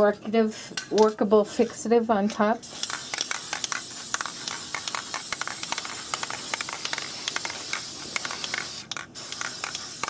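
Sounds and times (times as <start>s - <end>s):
aerosol can spraying: 2.6s - 10.0s.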